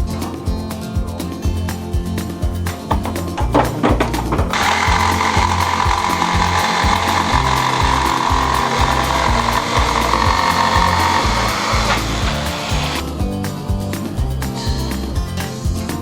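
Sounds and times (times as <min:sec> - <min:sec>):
background music: 0:00.0 - 0:16.0
jigsaw cutting plywood: 0:04.5 - 0:13.1.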